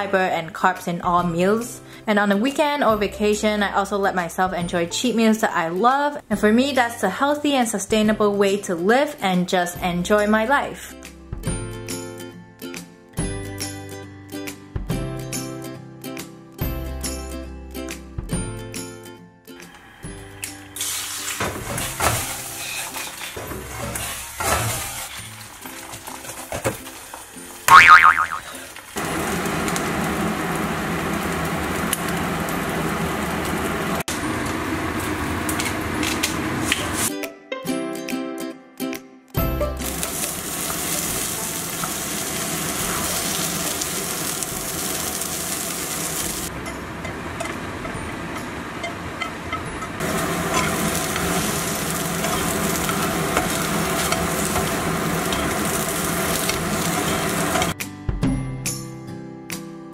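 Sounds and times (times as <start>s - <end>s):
eggs sizzling in a frying pan: 20.6s - 37.1s, 39.8s - 47.2s, 50.0s - 57.8s
spatula scraping pan: 20.8s - 26.8s, 50.0s - 57.8s.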